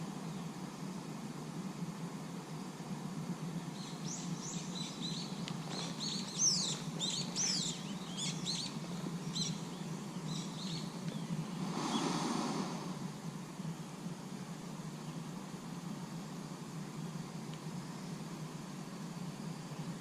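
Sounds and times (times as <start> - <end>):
songbird chirping and twittering: 3.5 - 13.1.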